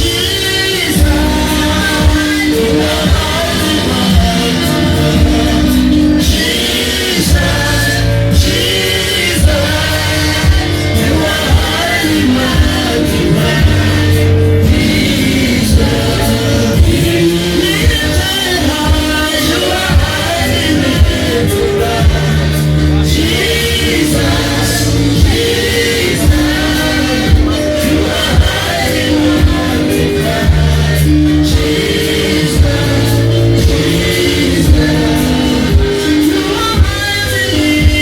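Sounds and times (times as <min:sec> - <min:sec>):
group singing a praise song: 0:00.0 - 0:38.0.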